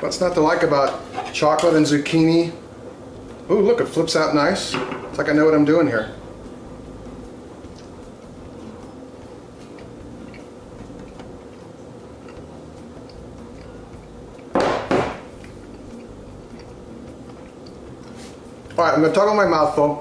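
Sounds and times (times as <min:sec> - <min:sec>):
man chewing: 0:07.1 - 0:14.5, 0:15.3 - 0:18.8.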